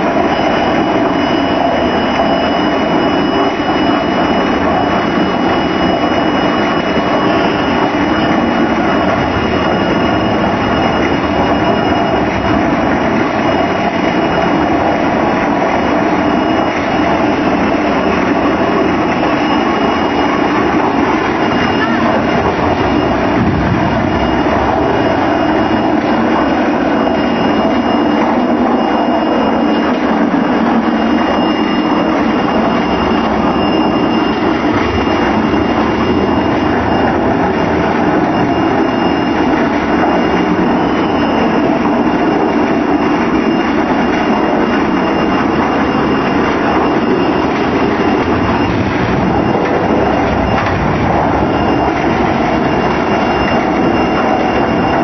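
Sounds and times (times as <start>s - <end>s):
thin high whine: 0.0s - 55.0s
concrete mixer running: 2.7s - 28.9s, 44.6s - 55.0s.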